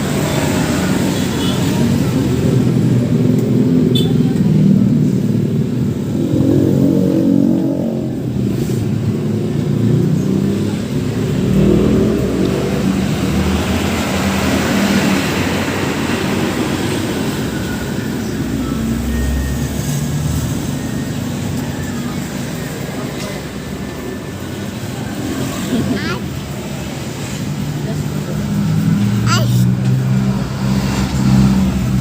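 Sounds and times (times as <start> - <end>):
vehicle engine and road noise: 0.0 - 32.0
faint voices: 21.5 - 30.2.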